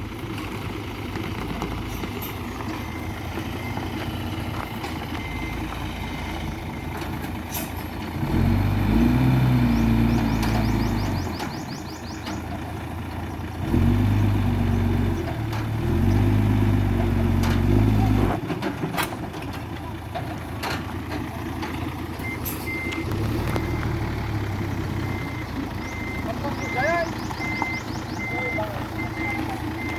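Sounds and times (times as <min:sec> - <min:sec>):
excavator diesel engine revving: 0:00.0 - 0:29.9
high beeping alarm: 0:25.0 - 0:29.9.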